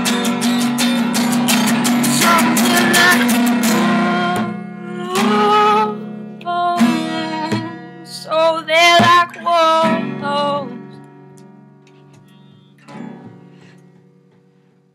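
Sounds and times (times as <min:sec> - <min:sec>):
acoustic guitar chords strummed: 0:00.0 - 0:14.8
wordless sung vocal: 0:02.0 - 0:10.7.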